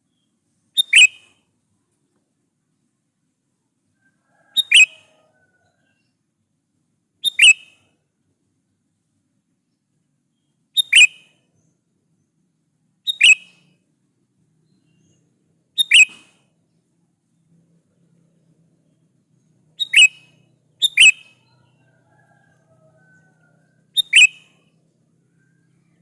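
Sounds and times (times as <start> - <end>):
bulbul calling: 0.1 - 1.4, 4.6 - 5.1, 7.2 - 7.9, 10.8 - 11.7, 13.0 - 13.7, 15.8 - 16.4, 19.8 - 21.9, 22.8 - 24.7.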